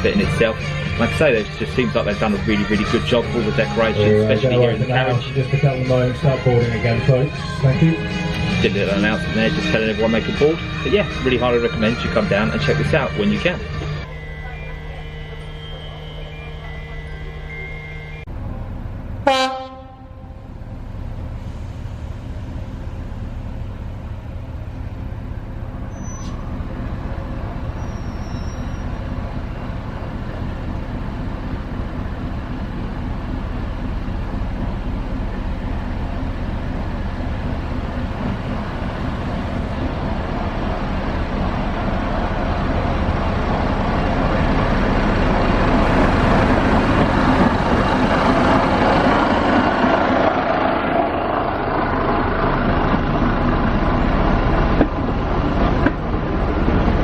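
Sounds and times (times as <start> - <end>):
locomotive diesel engine running: 0.0 - 57.0
train rumble: 0.0 - 57.0.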